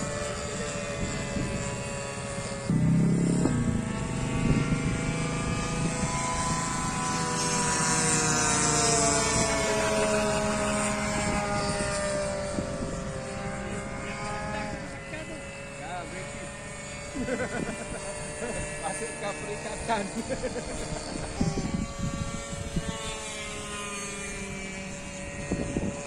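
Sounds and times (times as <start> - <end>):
model plane motor whining: 0.0 - 26.0
low rumble: 2.7 - 7.1.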